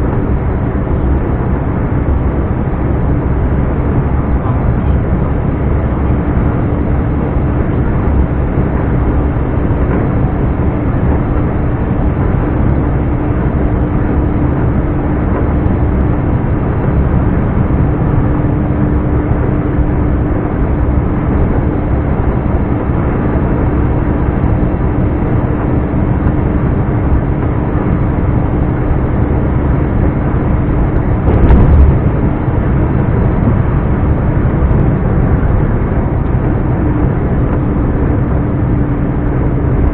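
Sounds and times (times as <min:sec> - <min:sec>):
truck diesel engine droning: 0:00.0 - 0:39.9
loud thump: 0:31.2 - 0:32.3.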